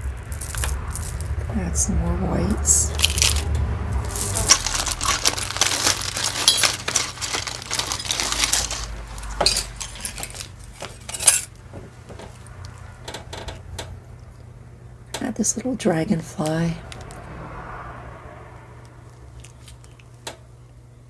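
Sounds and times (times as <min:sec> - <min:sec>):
beads and jewelry clinking: 0:00.0 - 0:01.4, 0:02.6 - 0:11.5.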